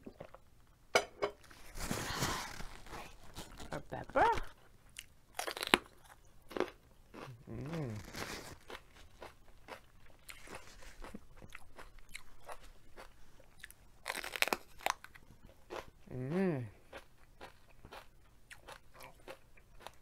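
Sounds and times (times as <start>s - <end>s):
close-up chewing: 4.4s - 16.0s, 16.8s - 20.0s
person humming: 7.3s - 8.2s, 16.1s - 16.8s.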